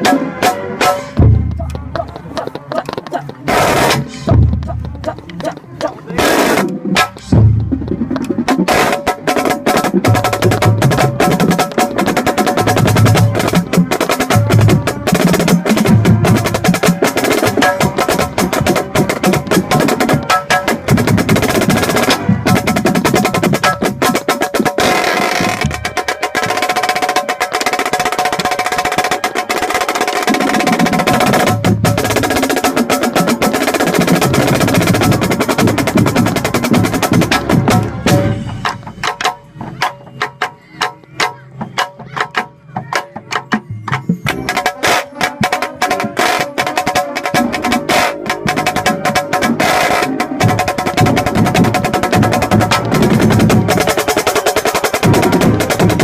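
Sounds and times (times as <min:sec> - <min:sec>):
snare drum rolls: 0:44.0 - 0:56.0.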